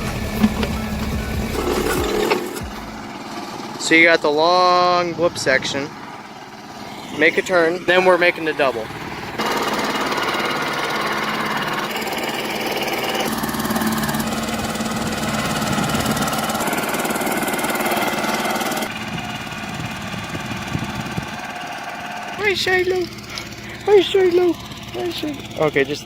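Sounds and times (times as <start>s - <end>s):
small engine running: 0.0s - 26.0s.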